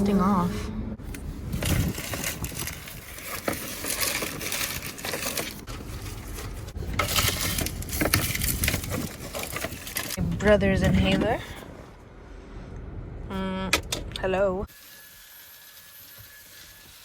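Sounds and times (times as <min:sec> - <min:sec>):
objects rustling and crinkling: 0:01.0 - 0:12.0.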